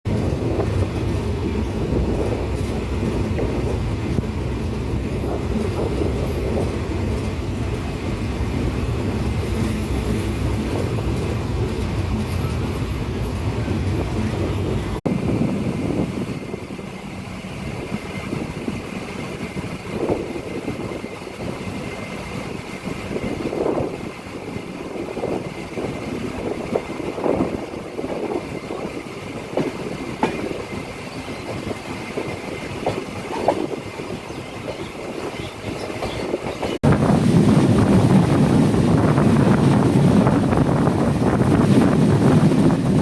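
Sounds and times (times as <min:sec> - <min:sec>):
train rumbling on rails: 0:00.0 - 0:43.0.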